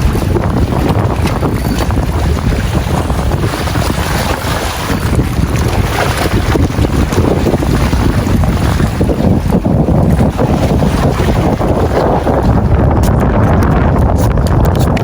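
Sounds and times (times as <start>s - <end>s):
sea washing: 0.0s - 15.0s
strong wind buffeting microphone: 0.0s - 15.0s.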